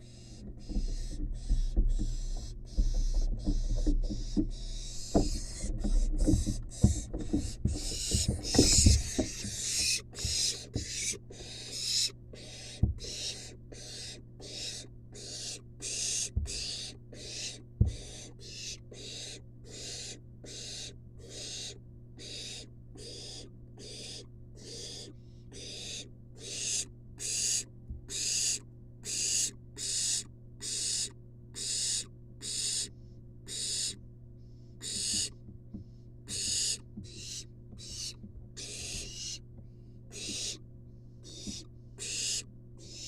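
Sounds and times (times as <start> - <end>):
low electrical hum: 0.0 - 43.0
dull knocks in nest box: 0.4 - 11.1
owl nestling hissing begging calls: 7.8 - 34.0, 34.8 - 35.3, 36.3 - 39.4, 40.1 - 40.6, 41.2 - 43.0.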